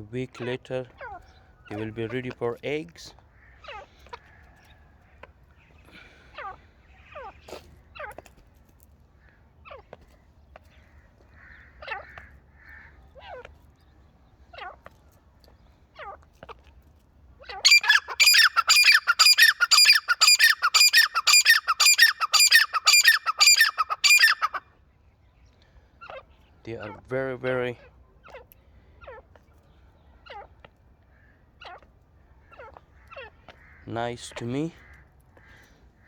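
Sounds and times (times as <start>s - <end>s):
francolins calling: 0.0s - 8.2s, 17.4s - 24.8s
shrill rapidly repeated bird notes: 17.7s - 24.6s.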